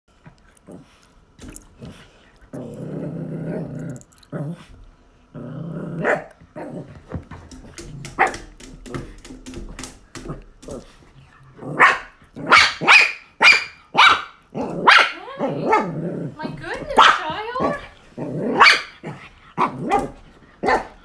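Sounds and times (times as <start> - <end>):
dog growling: 1.7 - 7.2, 14.5 - 21.0
dog barking sharply: 11.8 - 15.9, 16.9 - 17.9, 18.5 - 21.0.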